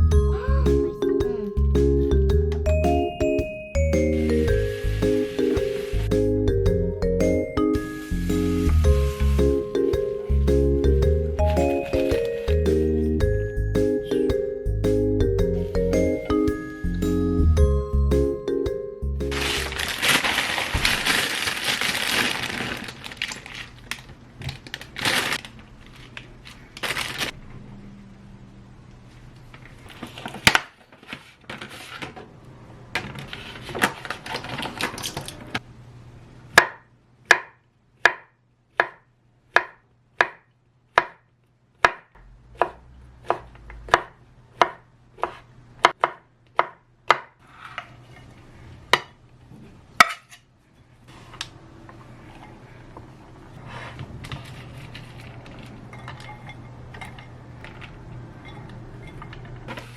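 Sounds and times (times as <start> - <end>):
rustling: 7.8 - 10.5, 19.3 - 27.4, 53.5 - 56.6
knife chopping on cutting board: 36.6 - 40.4, 41.0 - 41.2, 41.8 - 47.3
kitchen clatter: 54.2 - 59.9.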